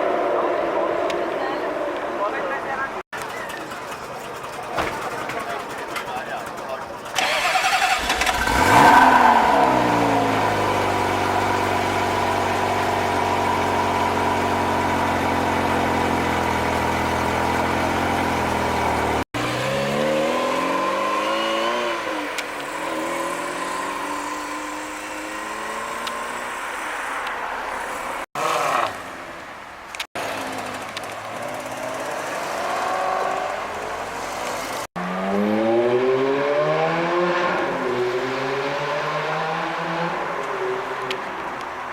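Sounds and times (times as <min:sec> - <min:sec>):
car engine idling: 0:02.6 - 0:19.3.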